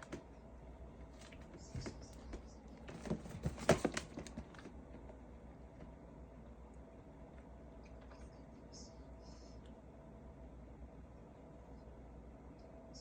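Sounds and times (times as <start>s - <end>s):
faint room hum: 0.0s - 13.0s
cat paws pattering and scratching: 1.0s - 5.1s.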